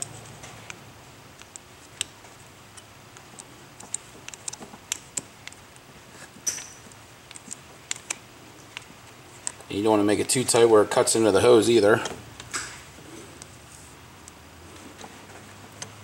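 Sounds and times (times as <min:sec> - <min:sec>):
metallic clicks of hose clamps: 0:06.4 - 0:09.7.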